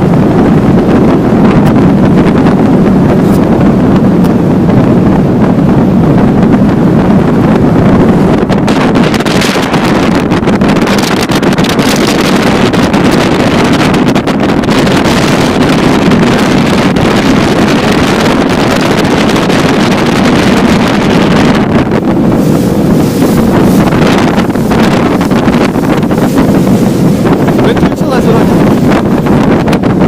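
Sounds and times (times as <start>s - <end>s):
motorboat engine drone: 0.0s - 30.0s
wind buffeting microphone: 0.0s - 30.0s
rushing water: 18.0s - 30.0s.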